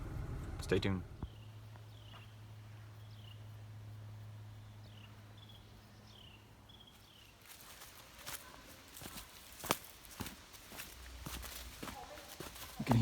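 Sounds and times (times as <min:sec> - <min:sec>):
footsteps on trail: 0:06.8 - 0:13.0.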